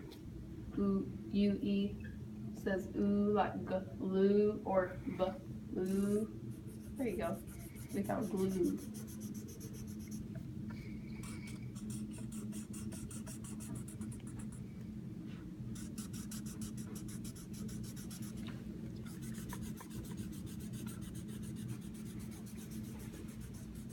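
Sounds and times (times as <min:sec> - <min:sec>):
pen scratching on paper: 0:06.6 - 0:10.3, 0:11.7 - 0:14.6, 0:15.8 - 0:18.4, 0:19.2 - 0:23.9.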